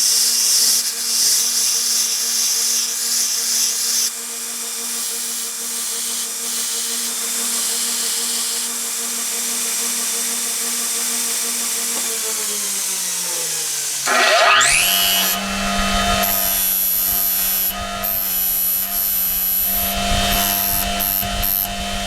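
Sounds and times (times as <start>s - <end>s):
electric grinder motor: 0.1s - 22.0s
grinder hissing against steel: 13.2s - 22.0s.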